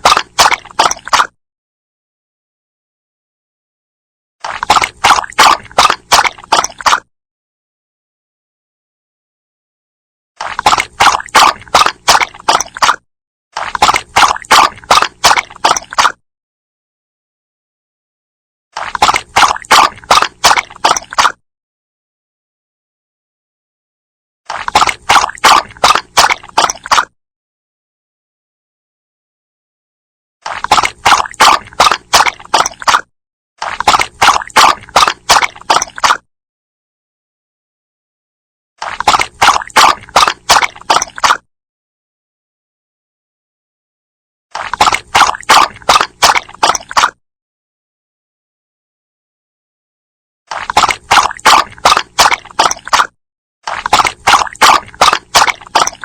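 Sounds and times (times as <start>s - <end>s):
dog lapping water: 0.0s - 1.4s, 4.4s - 7.1s, 10.4s - 13.0s, 13.6s - 16.2s, 18.8s - 21.4s, 24.5s - 27.1s, 30.4s - 36.2s, 38.8s - 41.4s, 44.5s - 47.2s, 50.5s - 56.0s.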